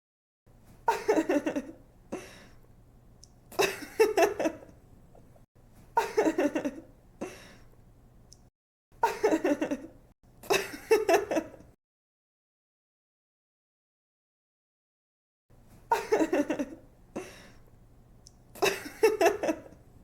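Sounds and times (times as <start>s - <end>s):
young woman giggling: 0.9s - 1.8s, 3.6s - 4.7s, 6.0s - 6.9s, 15.9s - 17.3s, 18.6s - 19.8s.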